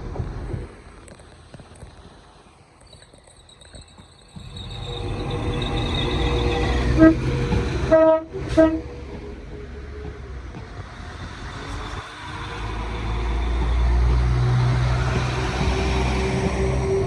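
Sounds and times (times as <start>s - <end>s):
low train rumble: 0.0s - 17.0s
train horn toots: 4.5s - 9.1s.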